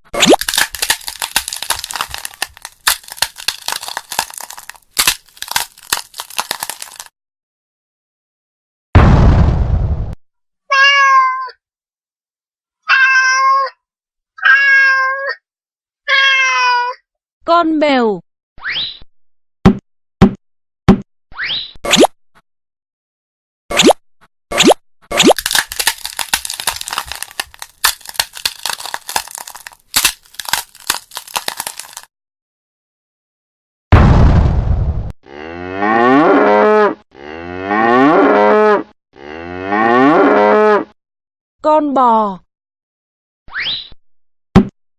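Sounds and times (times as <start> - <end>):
crackling rustle: 0.3 - 7.1, 25.4 - 32.1
cat meowing: 10.7 - 11.6, 12.8 - 13.8, 14.4 - 15.4, 16.1 - 17.0.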